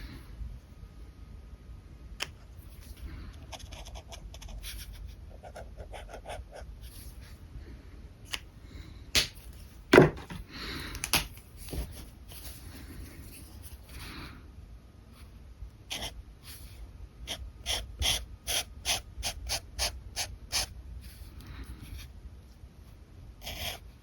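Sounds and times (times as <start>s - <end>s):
marker scratching on paper: 3.5s - 7.1s, 15.9s - 20.7s, 23.4s - 23.8s.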